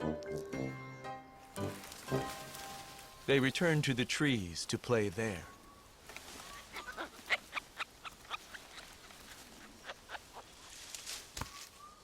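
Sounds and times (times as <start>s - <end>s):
monkey chirps and clicks: 6.7s - 10.5s.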